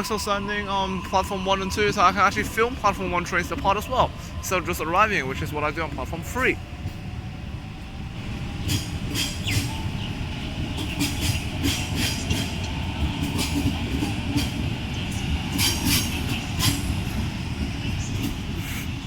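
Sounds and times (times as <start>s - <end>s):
train wheels rumbling on rail: 0.0s - 19.0s
wheels clicking and squealing: 8.5s - 19.0s.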